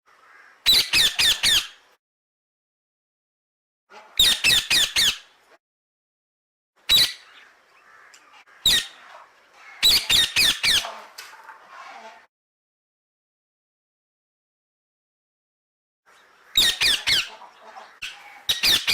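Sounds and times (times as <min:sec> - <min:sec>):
parrot screeching squawks: 0:00.6 - 0:01.8, 0:06.9 - 0:07.3, 0:07.9 - 0:09.0, 0:09.6 - 0:10.8, 0:16.5 - 0:17.3, 0:18.0 - 0:18.9.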